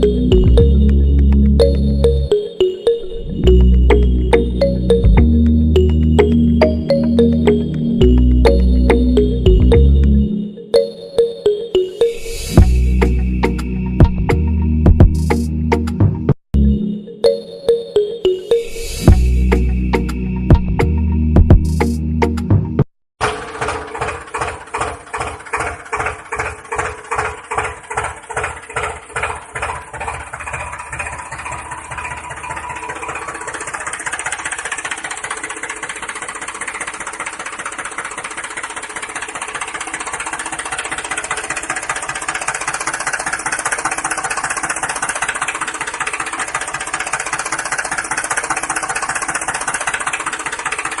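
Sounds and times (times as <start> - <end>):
tractor engine chugging: 0.0 - 2.7, 3.4 - 10.4, 12.6 - 16.0, 19.1 - 21.8, 23.2 - 51.0.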